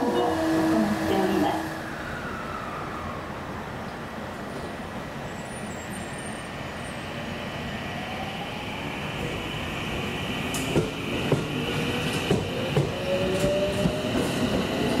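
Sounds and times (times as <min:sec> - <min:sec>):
electric train running rumble: 0:00.0 - 0:02.7, 0:03.4 - 0:15.0.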